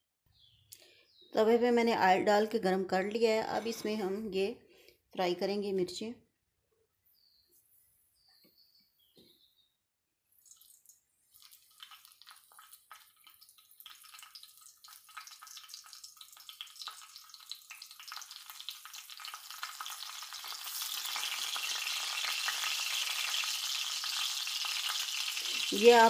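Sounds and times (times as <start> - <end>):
chilies sizzling in hot oil: 10.5 - 26.0.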